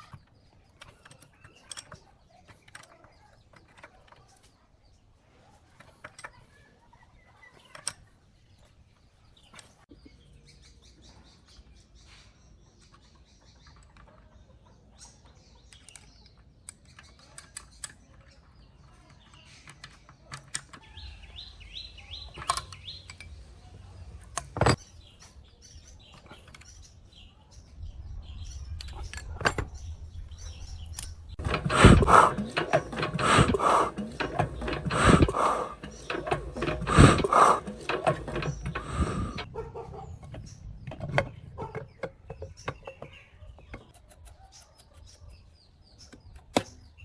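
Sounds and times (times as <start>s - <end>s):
birds chirping: 0.0s - 47.0s
hand tools clicking on metal: 30.9s - 39.5s
noisy handling bursts: 30.9s - 39.5s.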